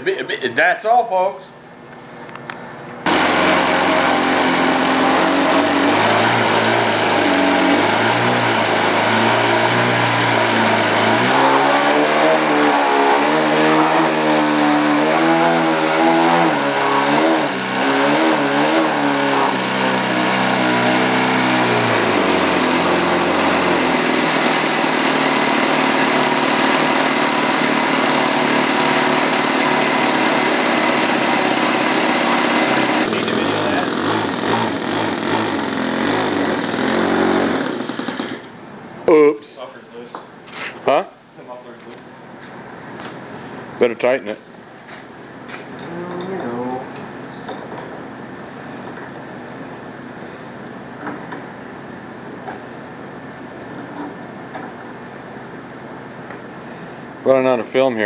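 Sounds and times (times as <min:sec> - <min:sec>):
model airplane engine running: 0:03.1 - 0:38.5.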